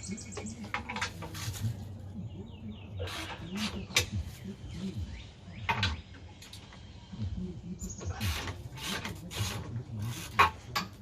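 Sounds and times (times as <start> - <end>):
hand tools clanking on metal: 8.2 - 11.0.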